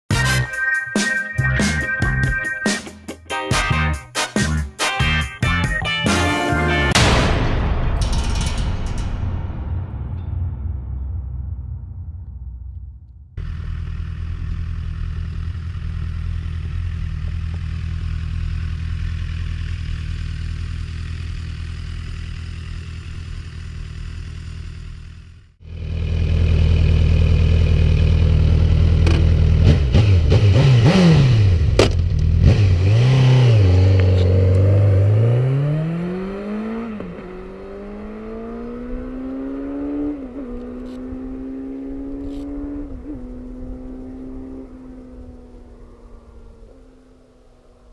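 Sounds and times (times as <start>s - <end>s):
motorcycle engine revving: 13.4s - 47.8s.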